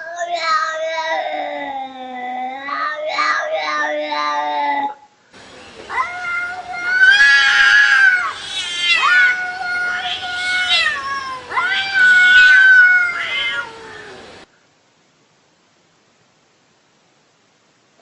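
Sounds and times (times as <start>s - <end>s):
cat meowing: 5.9s - 14.2s.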